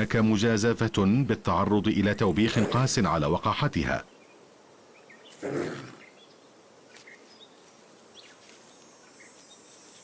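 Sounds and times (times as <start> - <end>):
birds chirping: 0.0 - 10.0
insects chirping: 2.4 - 10.0
wolf snarling: 2.5 - 2.9, 5.4 - 6.0.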